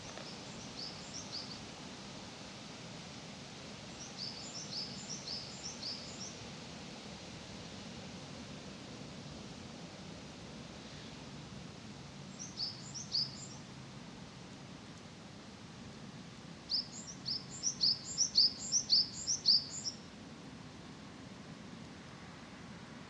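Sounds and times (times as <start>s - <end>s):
small bird chirping: 0.0s - 1.6s, 4.0s - 6.3s, 12.3s - 13.6s, 16.7s - 20.0s.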